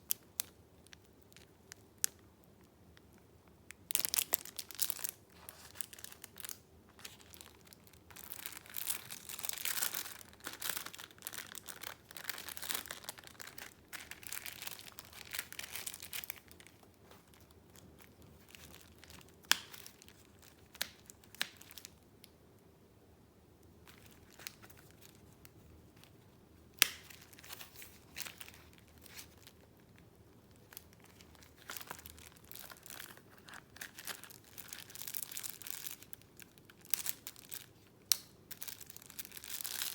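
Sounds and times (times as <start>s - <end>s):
paper rustling and crinkling: 4.0s - 6.3s.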